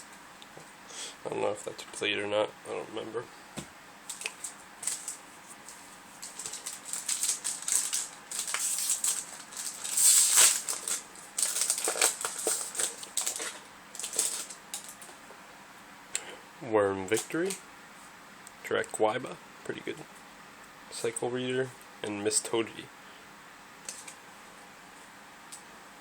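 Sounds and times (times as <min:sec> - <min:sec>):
foil wrappers crinkling: 0:04.0 - 0:15.2.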